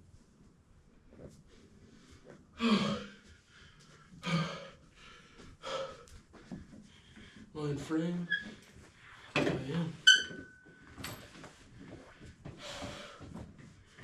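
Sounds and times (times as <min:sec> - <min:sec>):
man gasping: 0:02.6 - 0:03.4, 0:04.2 - 0:06.2.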